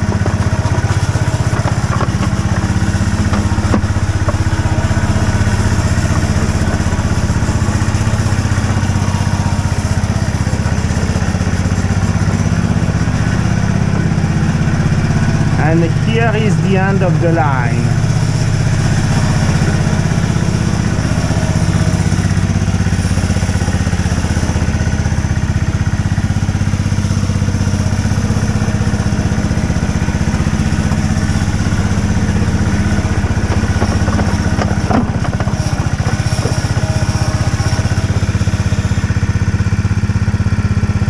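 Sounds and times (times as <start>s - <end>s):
small engine running: 0.0s - 41.0s
metal clanks: 32.5s - 38.0s.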